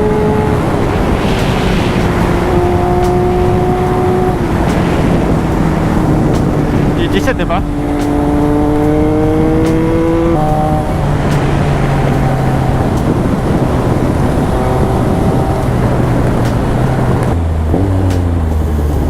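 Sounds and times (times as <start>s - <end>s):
motorcycle engine revving: 0.0s - 19.0s
wind rush: 0.0s - 19.0s.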